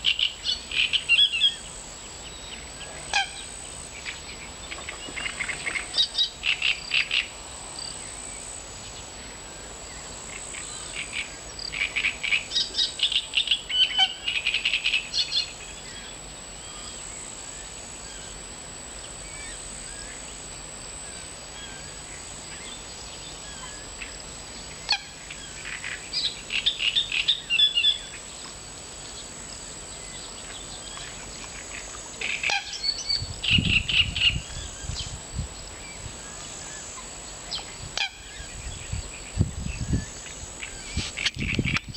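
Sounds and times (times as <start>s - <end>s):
steady background hiss: 0.0s - 41.9s
nightingale singing: 24.6s - 28.2s, 32.3s - 41.9s.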